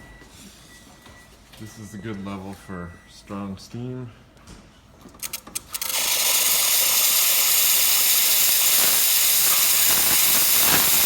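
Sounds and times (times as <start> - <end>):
espresso steam wand hissing: 6.0 - 11.0.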